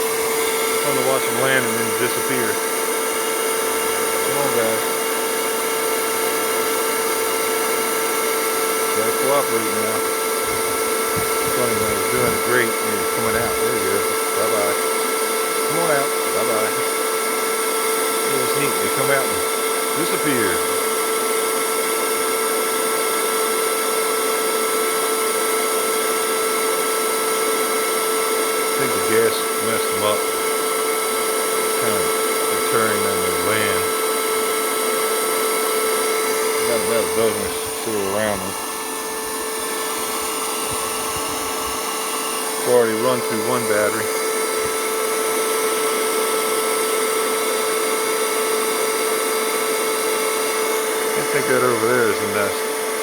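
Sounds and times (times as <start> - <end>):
vacuum cleaner whining: 0.0 - 53.0.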